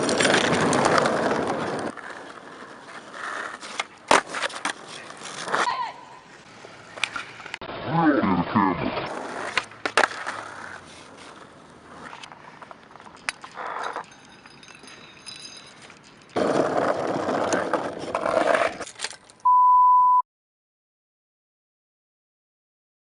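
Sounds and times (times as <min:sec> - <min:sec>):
loud steady beep tone: 0:19.5 - 0:20.2.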